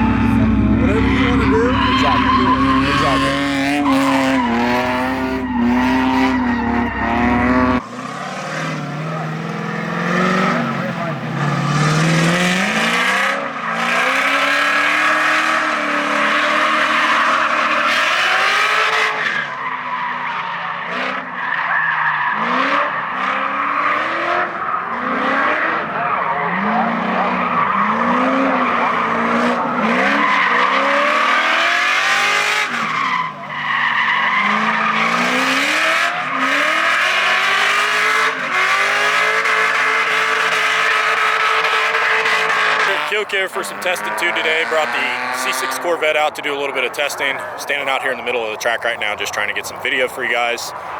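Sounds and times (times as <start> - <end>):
tyres squealing: 0.0 - 7.8, 21.4 - 37.2
car engine revving hard: 0.0 - 20.2, 22.3 - 48.1.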